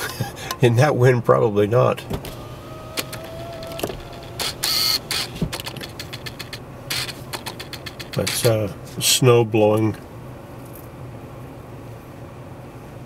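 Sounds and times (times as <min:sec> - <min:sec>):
clicks and knocks: 0:02.1 - 0:08.6.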